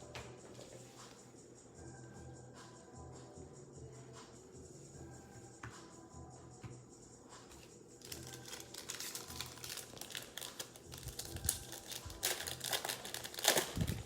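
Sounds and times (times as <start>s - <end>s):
plastic wrapper crinkling: 8.0s - 14.0s.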